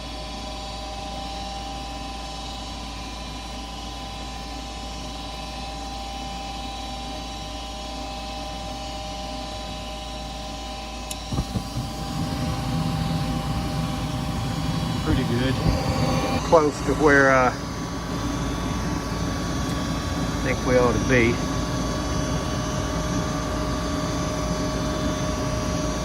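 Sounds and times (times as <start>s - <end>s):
furnace inducer motor whirring: 0.0s - 26.0s
low rumble of burners: 9.7s - 26.0s.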